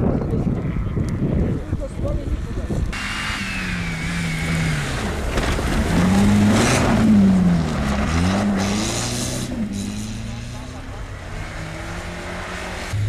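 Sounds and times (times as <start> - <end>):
brief rushing hiss: 3.0 - 5.1
car engine revving: 3.0 - 13.0.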